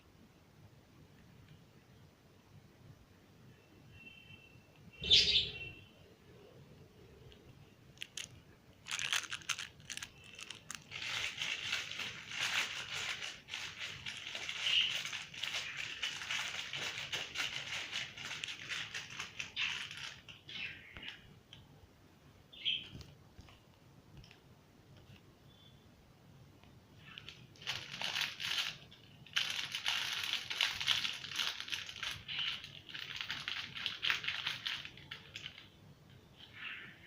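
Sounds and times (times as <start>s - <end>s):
bird chirping sharply: 3.9s - 6.1s
rapid scratchy rustling and clicking: 8.0s - 20.4s.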